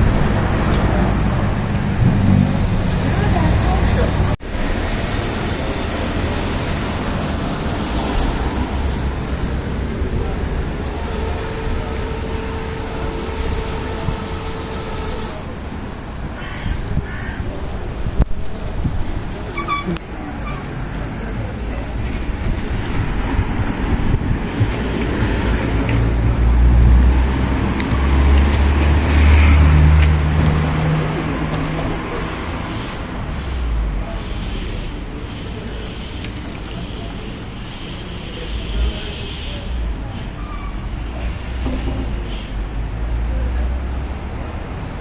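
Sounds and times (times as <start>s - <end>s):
vehicle engine hum: 0.0s - 16.4s, 17.6s - 45.0s
road traffic rumble: 0.0s - 45.0s.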